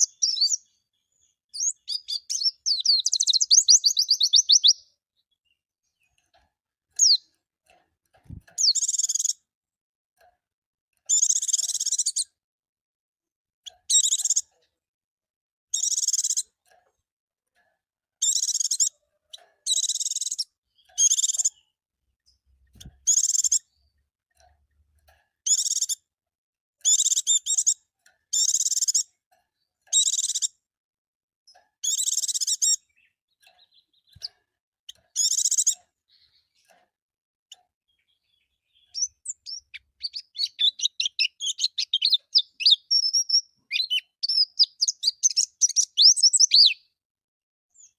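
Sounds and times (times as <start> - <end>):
bird singing high-pitched phrases: 0.0 - 5.6, 7.0 - 7.3, 8.6 - 9.4, 11.1 - 12.4, 13.7 - 14.5, 15.7 - 16.5, 18.2 - 19.0, 19.7 - 21.8, 22.8 - 23.9, 25.5 - 26.0, 26.8 - 29.0, 29.9 - 30.5, 31.8 - 34.3, 34.9 - 36.6, 37.9 - 47.0.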